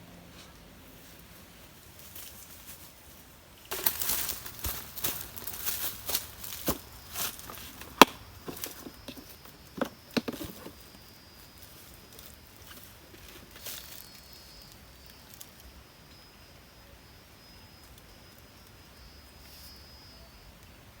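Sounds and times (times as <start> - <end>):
sharp knocks and cracks: 6.6 - 10.7.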